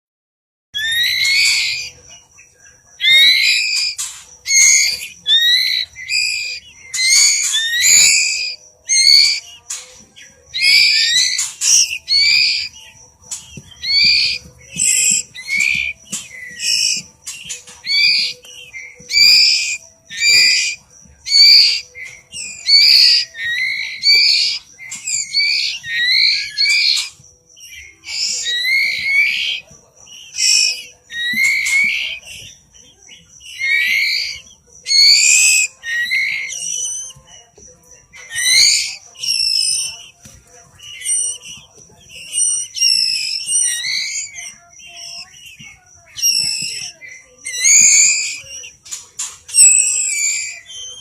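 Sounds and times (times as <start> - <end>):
bird chick begging calls: 0.8 - 2.0, 3.0 - 37.5, 38.1 - 51.0.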